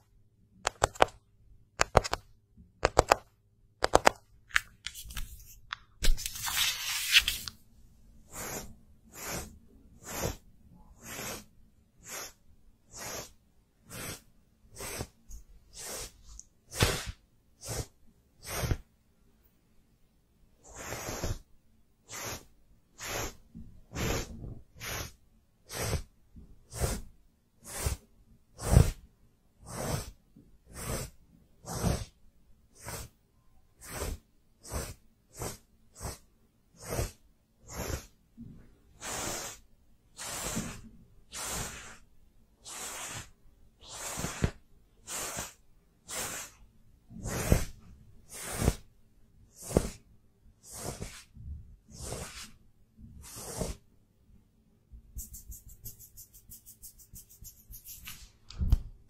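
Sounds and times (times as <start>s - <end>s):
brush strokes swishing: 5.0s - 7.5s, 8.3s - 18.8s, 20.6s - 21.4s, 22.1s - 26.1s, 26.7s - 27.0s, 29.7s - 32.1s, 32.8s - 33.1s, 33.8s - 36.2s, 40.2s - 42.0s, 42.6s - 46.6s, 47.2s - 48.8s, 49.6s - 50.0s, 50.6s - 51.3s, 51.9s - 52.6s, 53.2s - 53.8s, 55.2s - 58.3s.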